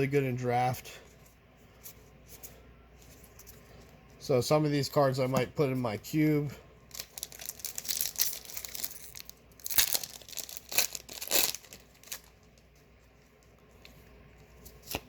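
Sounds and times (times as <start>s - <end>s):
foil wrapper tearing and crinkling: 6.9s - 12.5s.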